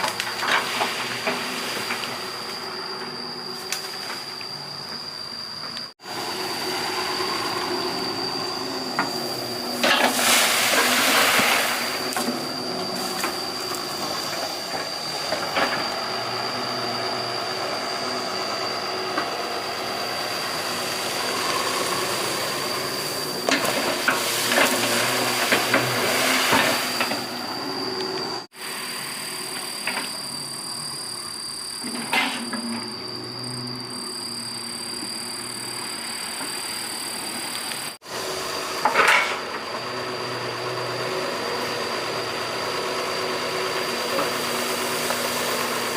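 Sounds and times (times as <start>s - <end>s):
excavator diesel engine whining: 0.0s - 45.9s
loud hydraulic rushing surges: 6.0s - 30.0s.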